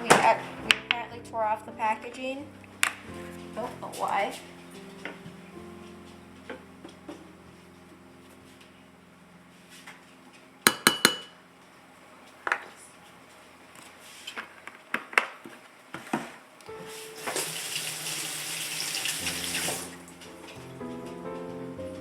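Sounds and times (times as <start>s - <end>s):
dishes and utensils clattering: 10.7s - 11.4s
kitchen tap running into sink: 17.2s - 20.0s.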